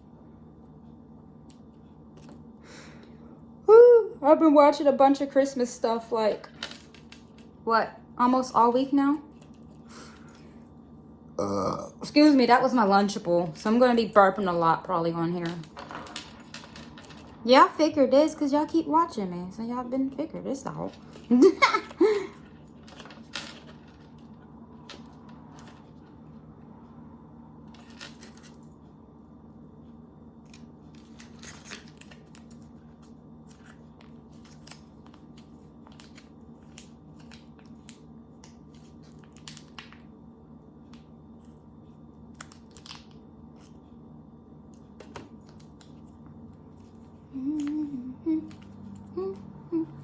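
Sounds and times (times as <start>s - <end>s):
steady low hum: 0.0s - 50.0s
person humming: 11.4s - 12.0s, 47.3s - 50.0s
candy clicking and rustling: 31.0s - 40.0s, 42.3s - 43.2s.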